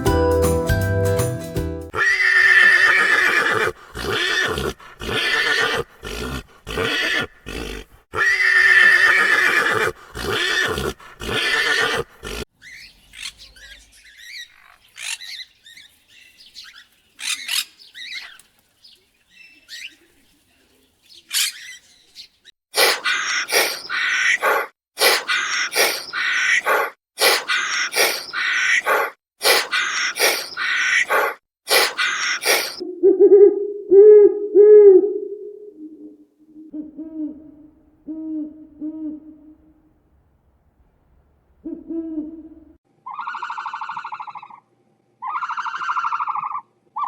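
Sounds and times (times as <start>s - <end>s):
jingly music: 0.0s - 1.9s
horse whinnying: 1.9s - 12.5s, 22.8s - 32.8s.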